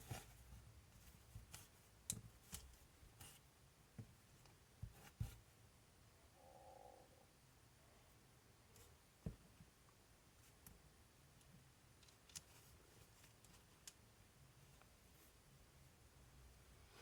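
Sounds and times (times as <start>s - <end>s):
small parts clicking and tapping: 1.4s - 3.3s, 11.4s - 14.1s.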